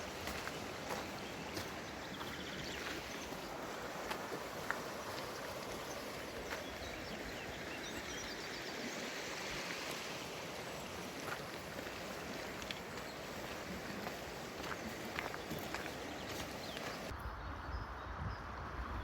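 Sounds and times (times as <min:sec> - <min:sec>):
stream rushing: 0:00.0 - 0:17.1
faint bird chirp: 0:00.4 - 0:03.6.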